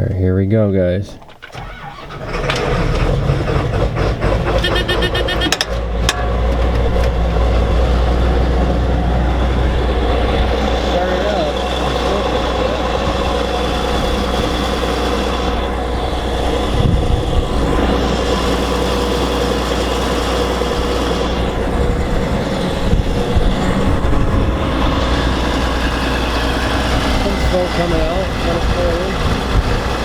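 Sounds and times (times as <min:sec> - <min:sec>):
diesel engine running: 0:01.5 - 0:30.0
low thumps: 0:03.8 - 0:19.2.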